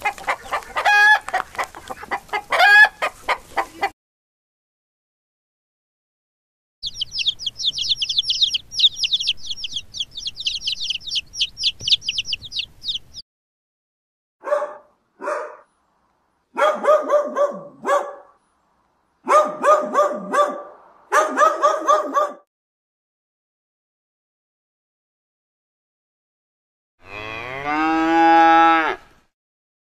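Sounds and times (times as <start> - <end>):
chick peeping: 0.0 - 3.9, 6.8 - 13.2
dog barking: 14.4 - 15.7, 16.5 - 18.4, 19.2 - 22.5.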